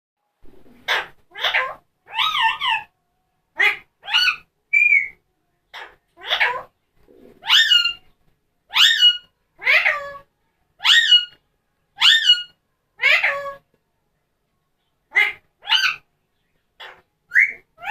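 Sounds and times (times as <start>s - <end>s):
parrot giving high calls: 0.9s - 2.9s, 3.6s - 6.7s, 7.4s - 8.0s, 8.7s - 11.4s, 12.0s - 13.6s, 15.1s - 16.0s, 16.8s - 17.9s.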